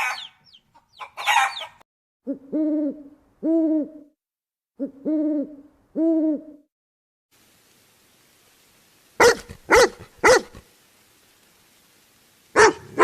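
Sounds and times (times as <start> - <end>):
dog barking: 9.2 - 10.6, 12.5 - 13.0.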